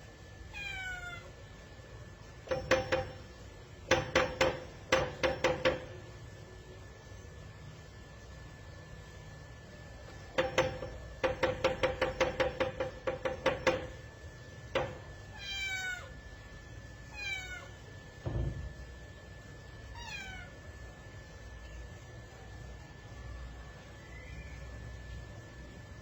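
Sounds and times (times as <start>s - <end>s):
cat meowing: 0.5s - 1.3s, 15.3s - 16.2s, 17.1s - 17.8s, 19.9s - 20.6s
cat knocking on door: 2.4s - 6.0s, 10.2s - 14.1s, 14.7s - 15.2s, 18.2s - 18.8s
dull thump: 18.2s - 18.8s.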